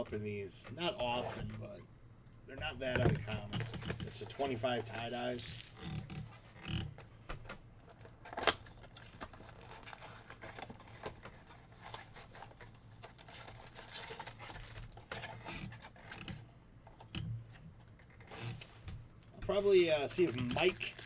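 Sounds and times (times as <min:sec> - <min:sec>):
foil wrapper crinkling and tearing: 0:03.5 - 0:06.1, 0:07.9 - 0:16.3, 0:19.5 - 0:21.0.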